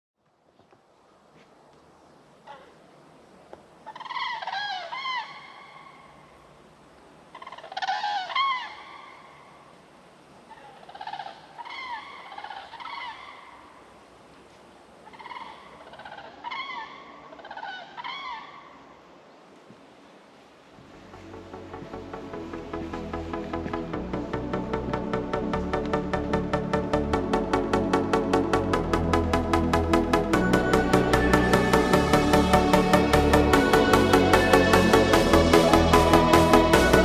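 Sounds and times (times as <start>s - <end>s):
faint steady hiss: 0.2s - 37.0s
animal high arching calls: 3.8s - 6.2s, 7.3s - 9.5s, 10.5s - 13.8s, 15.0s - 18.8s.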